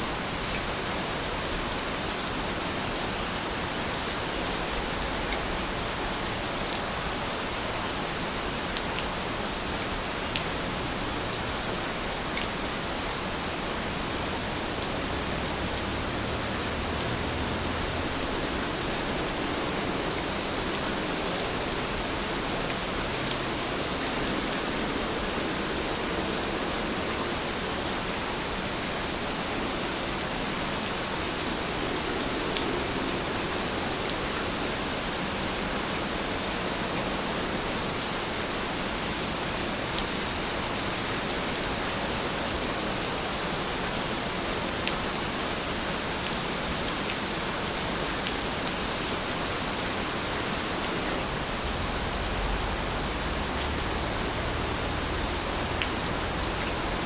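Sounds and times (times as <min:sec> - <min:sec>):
rain falling: 0:00.0 - 0:57.0
raindrop ticks: 0:53.4 - 0:56.9.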